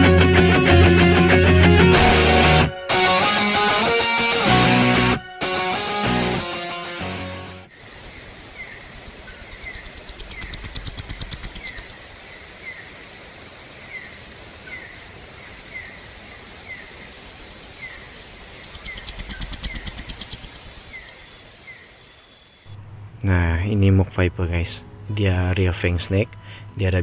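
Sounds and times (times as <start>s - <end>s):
insect falling chirps: 7.7s - 22.7s
insect pulsing trill: 7.7s - 22.8s.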